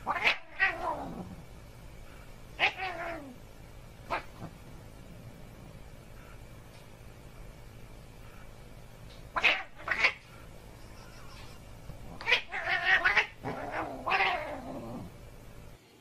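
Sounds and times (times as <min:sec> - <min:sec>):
cat yowling: 0:00.0 - 0:01.0, 0:02.6 - 0:03.4, 0:09.4 - 0:10.2, 0:12.2 - 0:15.0.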